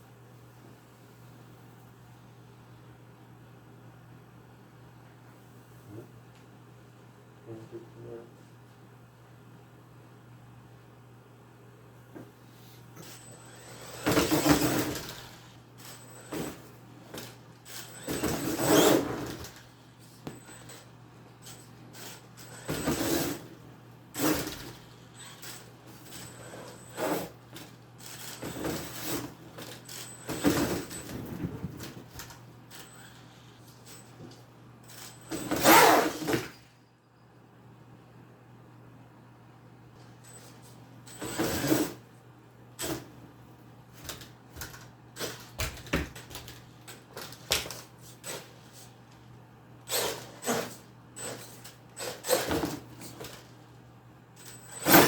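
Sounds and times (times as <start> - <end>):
rc truck motor whirring: 13.0 - 34.1, 34.8 - 36.8, 49.8 - 53.6, 54.4 - 55.0.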